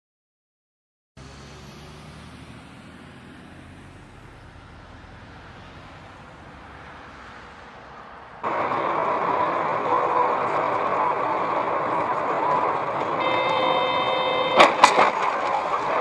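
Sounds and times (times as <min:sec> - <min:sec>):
road noise: 0:01.2 - 0:16.0
vehicle engine hum: 0:01.2 - 0:16.0
loud rushing noise: 0:08.4 - 0:16.0.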